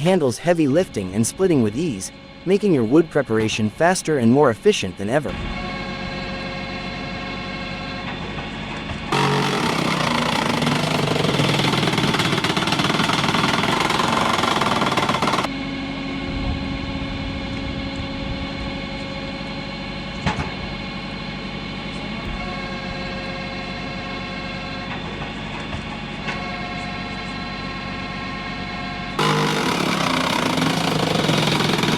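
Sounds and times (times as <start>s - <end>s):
engine running steadily: 5.3s - 31.9s
log splitter machine noise: 6.5s - 15.6s, 29.2s - 31.9s.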